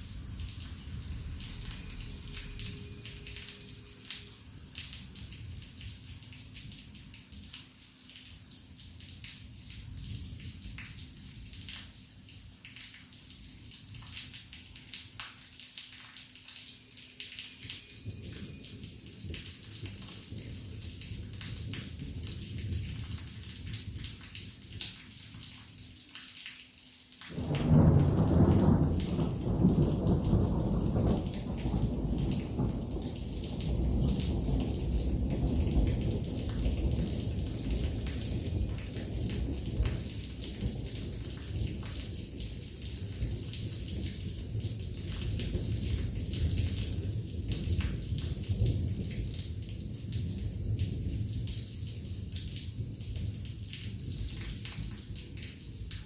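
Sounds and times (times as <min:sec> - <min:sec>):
heavy rain falling: 0:00.0 - 0:26.5, 0:27.1 - 0:56.0
thunder crack and rumble: 0:27.3 - 0:53.4.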